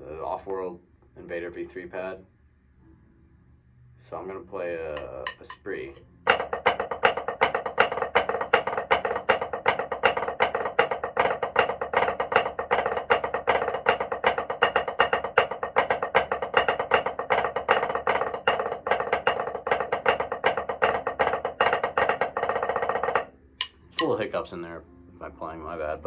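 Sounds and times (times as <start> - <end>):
drumsticks tapping practice pad: 4.8 - 24.3.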